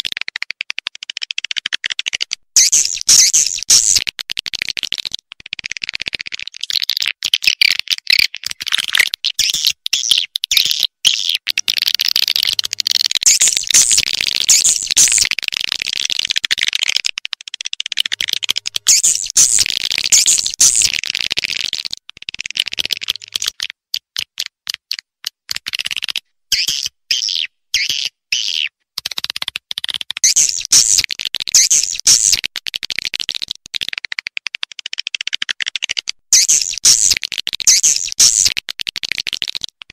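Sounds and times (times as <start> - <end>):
swiftlets chirping and twittering: 2.6 - 4.0, 9.4 - 15.3, 18.0 - 21.0, 30.2 - 31.0, 31.6 - 32.4, 36.4 - 38.5.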